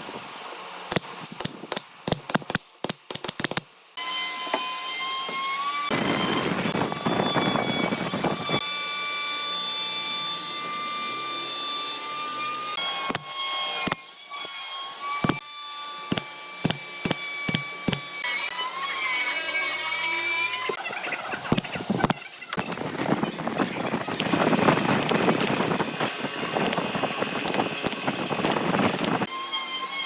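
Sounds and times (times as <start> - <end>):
power tool cutting wood: 4.0 - 20.8, 24.0 - 30.0.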